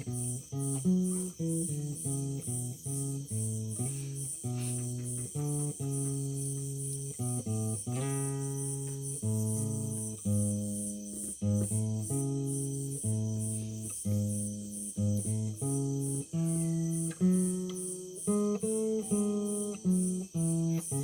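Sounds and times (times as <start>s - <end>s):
guitar chords: 0.0s - 21.0s.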